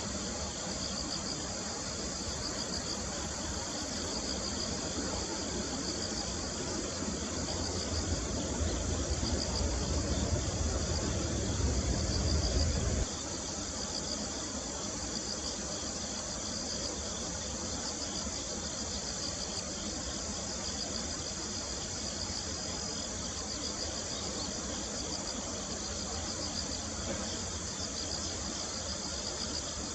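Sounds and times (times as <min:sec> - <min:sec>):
insects chirping in trills: 0:00.0 - 0:29.9
low rumble: 0:08.0 - 0:13.1.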